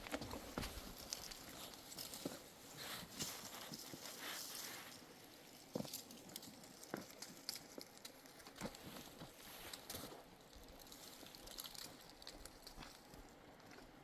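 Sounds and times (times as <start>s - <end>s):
footsteps on stony ground: 0.0s - 5.0s.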